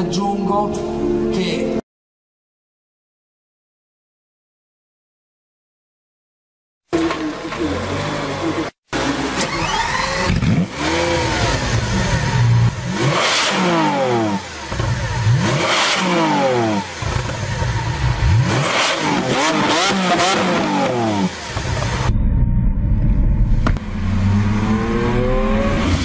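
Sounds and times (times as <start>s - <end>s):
sports car engine revving: 7.0s - 22.1s, 23.4s - 26.0s.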